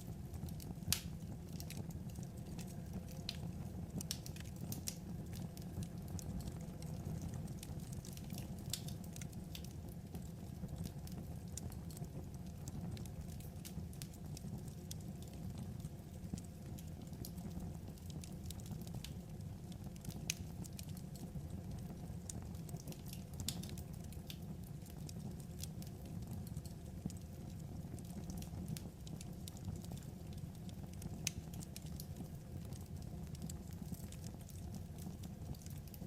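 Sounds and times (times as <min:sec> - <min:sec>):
wood fire crackling and popping: 0:00.0 - 0:36.0.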